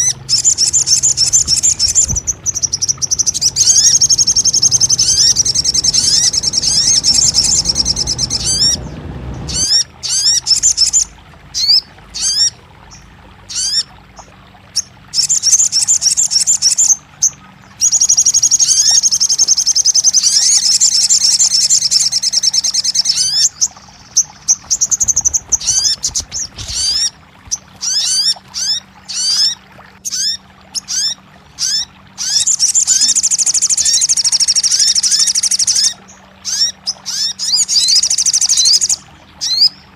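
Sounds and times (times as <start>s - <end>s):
bird chattering trills: 0.0s - 13.8s, 17.8s - 39.8s
faint steady hum: 0.0s - 39.9s.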